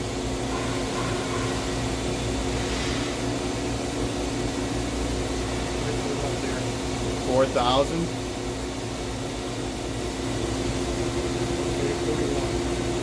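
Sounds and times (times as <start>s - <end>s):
machine spindle humming: 0.0s - 13.0s.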